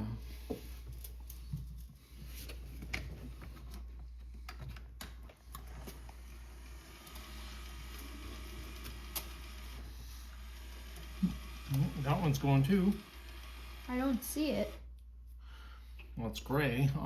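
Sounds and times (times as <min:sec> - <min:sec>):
faint motor whir: 0:05.5 - 0:15.0.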